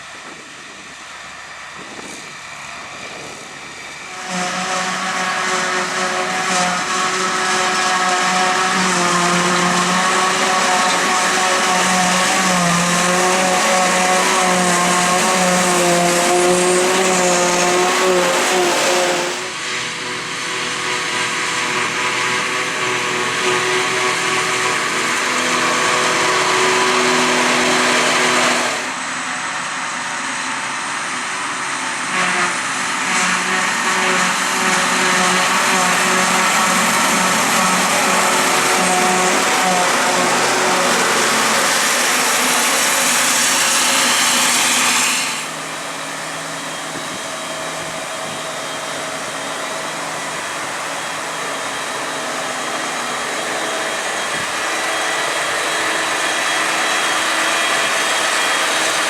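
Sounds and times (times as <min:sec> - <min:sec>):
harvesting machinery whine: 0:00.0 - 0:59.0
dense rushing noise: 0:13.8 - 0:20.4, 0:34.2 - 0:49.0.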